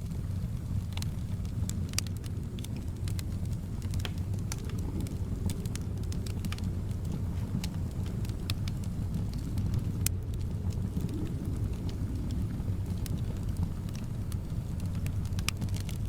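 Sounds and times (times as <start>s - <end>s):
soft wind rumble: 0.0s - 16.0s
wood fire crackling: 0.0s - 16.0s.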